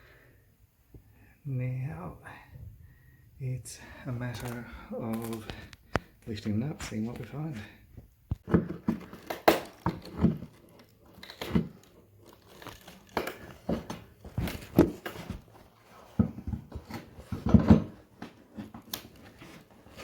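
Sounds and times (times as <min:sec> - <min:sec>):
floorboards being pried loose: 0:08.3 - 0:20.0.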